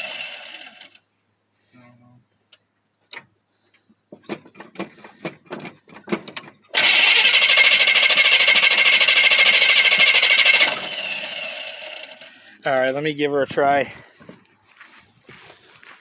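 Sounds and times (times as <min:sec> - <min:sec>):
starter motor cranking engine: 0:00.0 - 0:01.0, 0:04.5 - 0:12.4.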